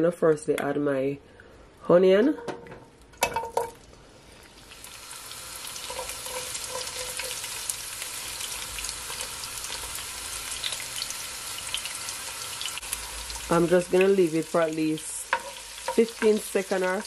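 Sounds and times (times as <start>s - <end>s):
onion knocking into pot: 2.4s - 3.8s
small crackles of frying: 3.0s - 17.0s
onion sizzling in oil: 3.4s - 17.0s.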